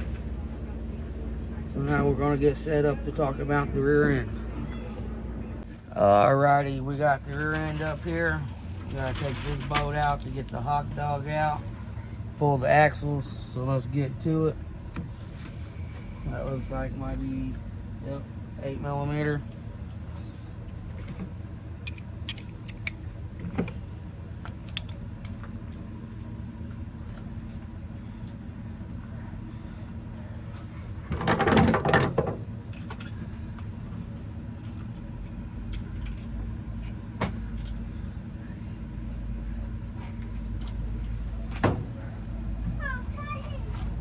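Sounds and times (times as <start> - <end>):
steady low hum: 0.0 - 44.0
metal tools clicking and clinking: 7.4 - 11.8, 21.8 - 23.0, 24.6 - 25.8.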